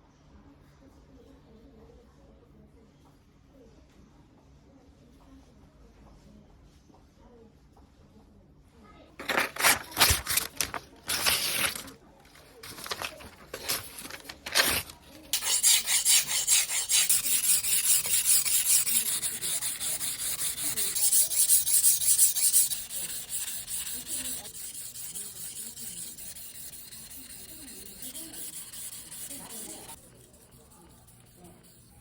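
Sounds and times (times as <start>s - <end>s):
knife scraping on whetstone: 12.6s - 32.0s.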